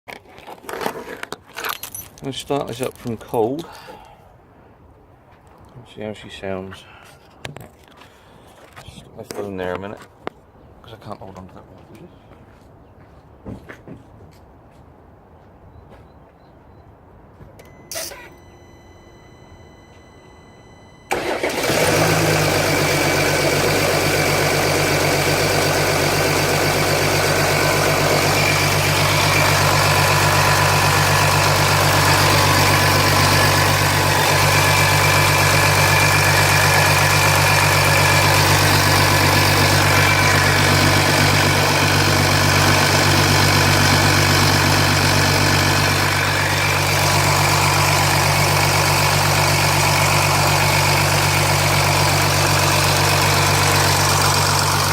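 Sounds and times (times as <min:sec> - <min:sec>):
diesel engine starting and idling: 0:17.6 - 0:54.9
engine rattle: 0:21.1 - 0:54.9.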